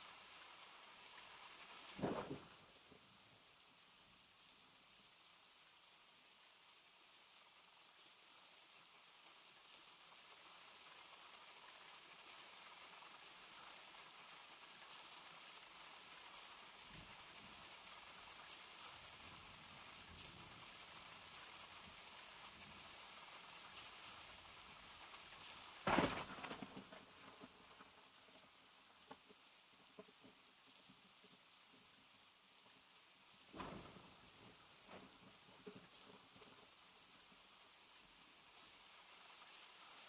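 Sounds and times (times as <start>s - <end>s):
steady rain falling: 0.0s - 40.0s
loud crack: 25.8s - 27.0s.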